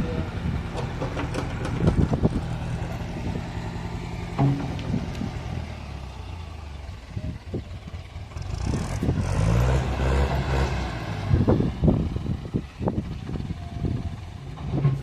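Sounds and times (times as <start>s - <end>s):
excavator diesel engine: 0.0s - 15.0s
sharp knocks and clatter: 0.7s - 2.3s, 4.4s - 5.3s.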